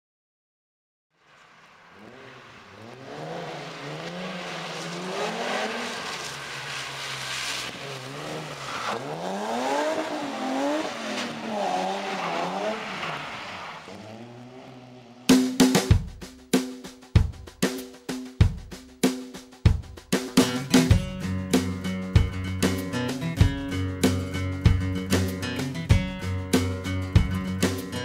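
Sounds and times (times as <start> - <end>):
car engine revving: 1.2 - 15.9
tyre noise on wet tarmac: 1.2 - 16.1.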